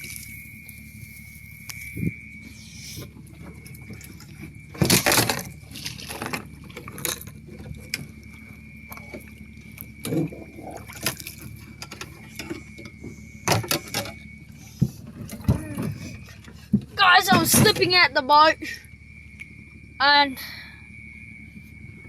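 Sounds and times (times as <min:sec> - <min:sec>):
water splashing around canoe: 0:00.0 - 0:18.1
knocks and bumps in canoe: 0:03.0 - 0:18.2.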